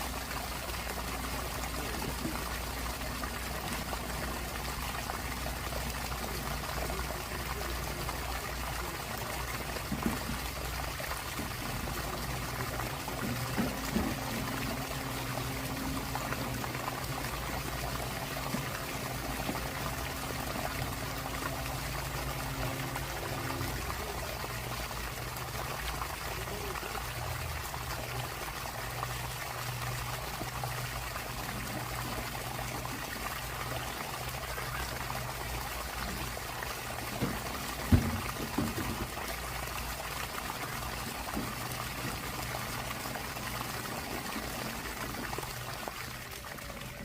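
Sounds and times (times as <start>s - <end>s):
water pouring from pipe outlet: 0.0s - 47.0s.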